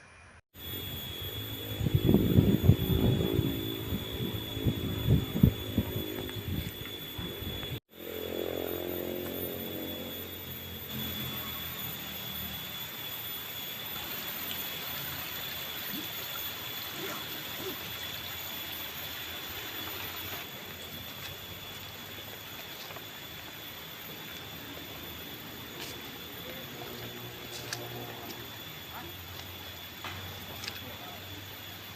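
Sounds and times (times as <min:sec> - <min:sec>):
chainsaw engine running: 0:00.8 - 0:15.6, 0:16.6 - 0:31.9.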